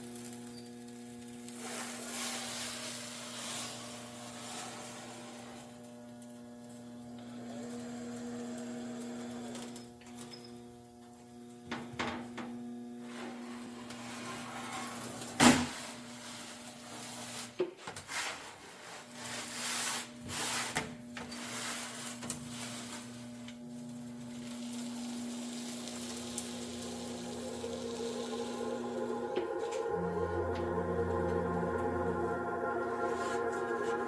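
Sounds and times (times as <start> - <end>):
sheet metal scraping and rubbing: 13.0 - 15.3
steady low hum: 25.8 - 34.0.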